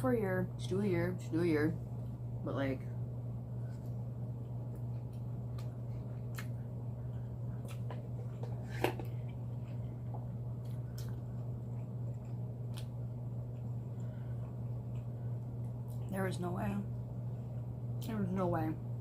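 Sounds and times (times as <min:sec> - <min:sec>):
low hum: 0:00.0 - 0:19.0
person chewing food: 0:03.6 - 0:16.1.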